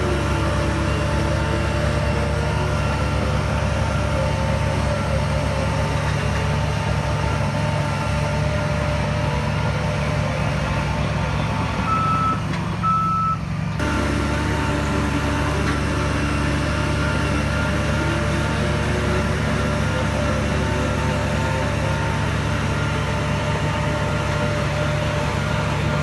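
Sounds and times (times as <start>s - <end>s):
diesel machine running: 0.0s - 26.0s
reversing alarm beeps: 11.9s - 13.4s.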